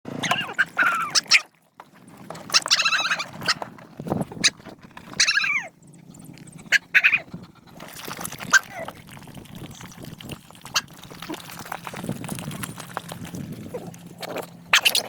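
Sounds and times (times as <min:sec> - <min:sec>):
dogs whining and yelping: 0:00.1 - 0:01.5, 0:02.4 - 0:09.1.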